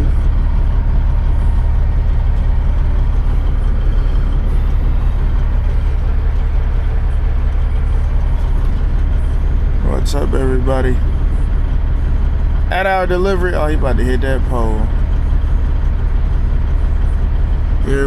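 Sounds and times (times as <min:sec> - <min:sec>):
diesel truck engine rumbling: 0:00.0 - 0:18.0.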